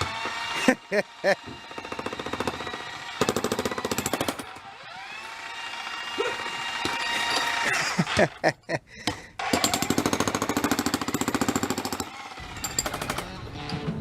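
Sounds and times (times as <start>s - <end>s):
jackhammer motor whine: 0.0s - 7.7s, 9.4s - 13.4s
jackhammer pounding concrete: 0.0s - 8.2s, 9.4s - 13.3s.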